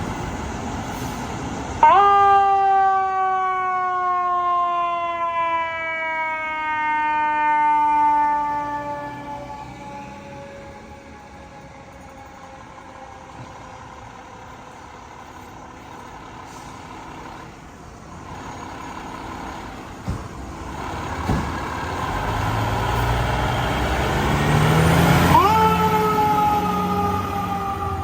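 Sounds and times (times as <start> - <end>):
heavy truck engine: 0.0 - 1.9, 6.1 - 28.0
siren wailing: 1.8 - 13.5, 23.6 - 28.0.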